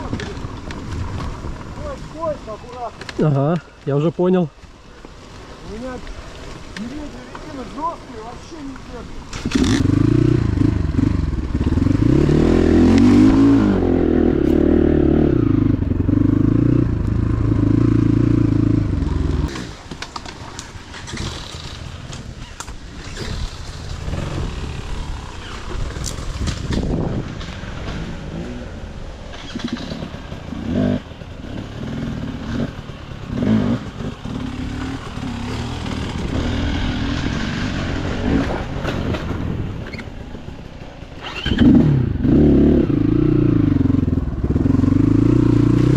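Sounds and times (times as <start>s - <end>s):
motorcycle engine running: 9.4s - 19.9s, 20.8s - 45.9s
clattering knocks and scrapes: 38.3s - 40.1s.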